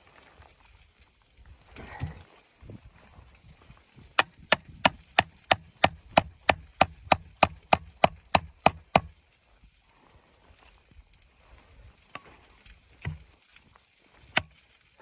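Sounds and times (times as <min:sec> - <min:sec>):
knife chopping on wooden board: 0:04.2 - 0:09.1, 0:13.0 - 0:13.3.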